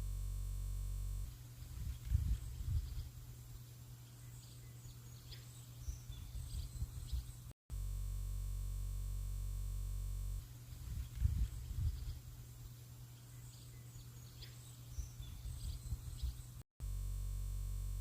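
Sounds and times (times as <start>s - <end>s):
faint bird chirps: 1.3s - 7.5s, 10.4s - 16.6s.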